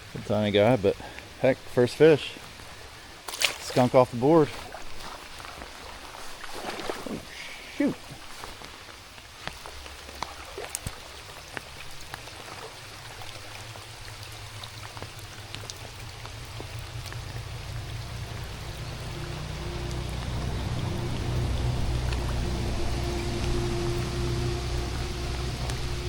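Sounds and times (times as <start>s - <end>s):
raindrops ticking close by: 0.0s - 26.0s
steady rain falling: 0.0s - 26.0s
low rumble: 15.2s - 26.0s.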